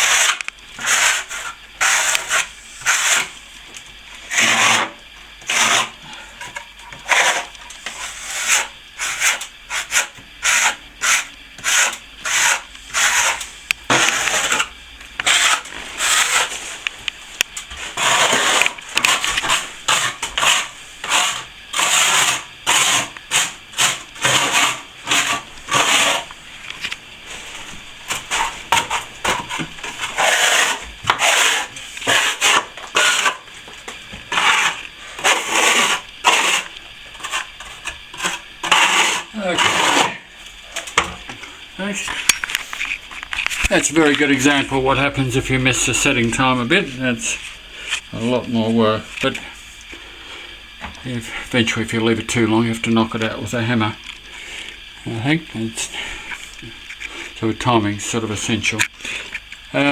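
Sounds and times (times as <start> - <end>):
trowel scraping plaster: 0.0 - 3.4, 4.2 - 16.9, 17.7 - 26.3, 27.3 - 41.0.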